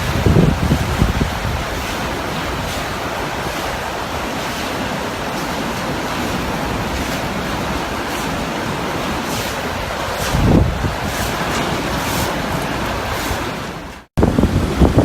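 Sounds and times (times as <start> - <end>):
wind buffeting microphone: 0.0 - 4.4, 5.2 - 15.0
typhoon wind roaring: 0.0 - 15.0.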